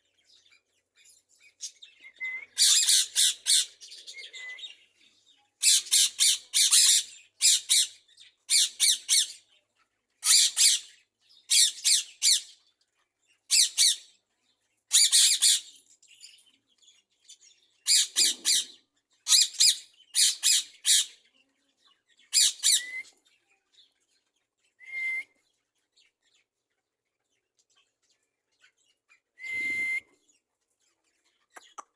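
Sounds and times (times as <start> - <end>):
short whistled note: 29.4 - 30.1.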